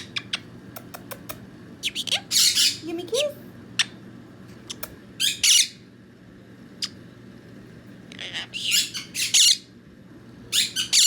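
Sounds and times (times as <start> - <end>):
parrot squawking: 1.8 - 2.9, 4.7 - 5.8, 8.1 - 9.7, 10.5 - 11.0.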